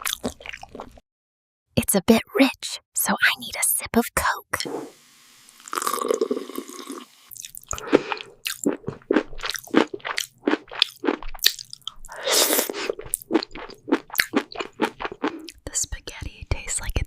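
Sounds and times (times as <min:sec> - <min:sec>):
wet crunchy chewing: 0:00.0 - 0:01.0, 0:05.6 - 0:15.6.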